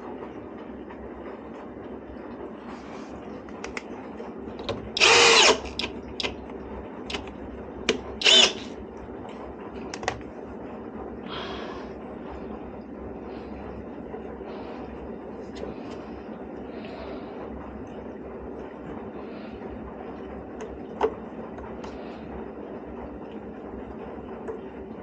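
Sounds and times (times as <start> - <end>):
cordless drill running: 4.9 - 6.3, 8.2 - 8.7.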